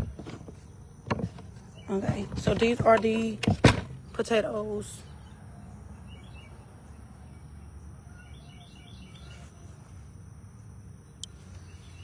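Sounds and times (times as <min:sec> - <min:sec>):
small bird chirping: 0:05.0 - 0:10.0, 0:11.0 - 0:12.0.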